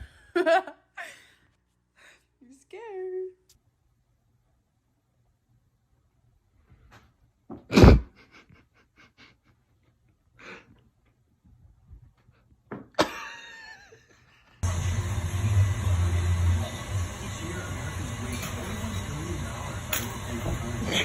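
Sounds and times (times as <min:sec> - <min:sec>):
steady noise: 0:14.6 - 0:21.0.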